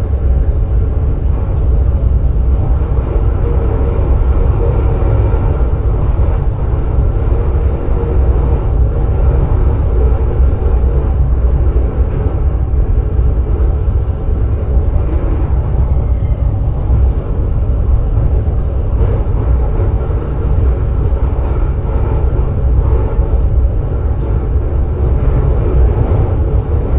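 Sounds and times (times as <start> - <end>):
electric train rumbling on track: 0.0 - 26.9.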